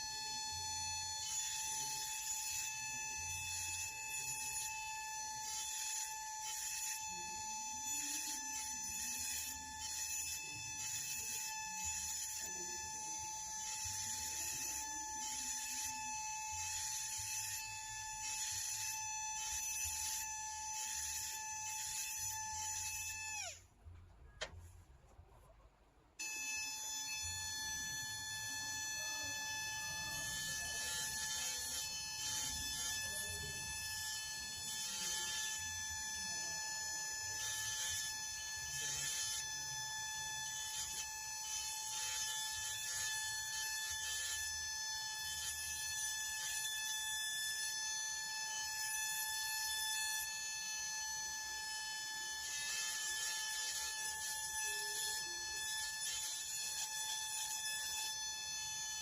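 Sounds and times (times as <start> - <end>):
small motor whining: 0.0 - 23.7, 26.2 - 59.0.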